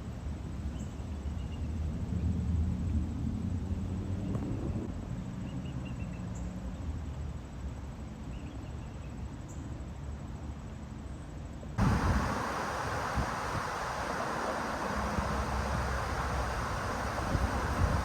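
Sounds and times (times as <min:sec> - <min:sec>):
bicycle rolling noise: 0:11.8 - 0:18.0
wind hiss on microphone: 0:11.8 - 0:18.0.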